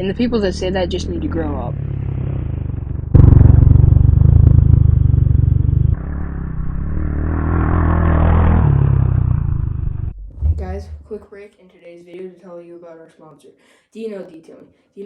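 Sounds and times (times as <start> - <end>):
dirt bike engine running: 0.0 - 11.2.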